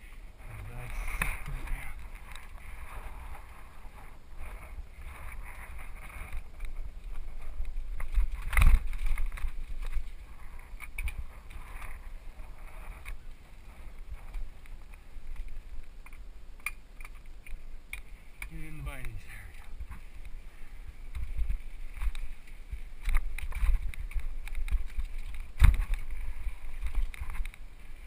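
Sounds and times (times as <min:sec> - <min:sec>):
wind on camera: 0:00.0 - 0:28.0
bike rolling over rocks: 0:00.4 - 0:28.0
bike clicks and knocks: 0:05.0 - 0:12.0, 0:21.1 - 0:27.6.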